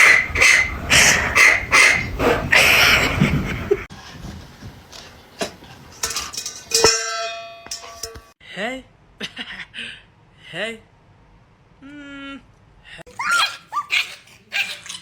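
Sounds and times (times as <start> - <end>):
dog barking: 13.3 - 15.0.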